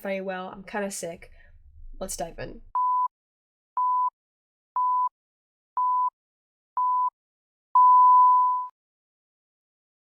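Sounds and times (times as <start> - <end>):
electronic countdown beeps: 3.8 - 4.1, 4.8 - 5.1, 5.8 - 6.1, 6.8 - 7.1, 7.8 - 8.7.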